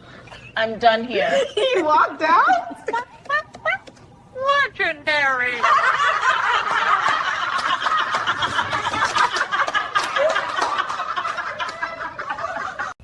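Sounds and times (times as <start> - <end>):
people laughing: 1.2 - 3.9, 5.5 - 13.0.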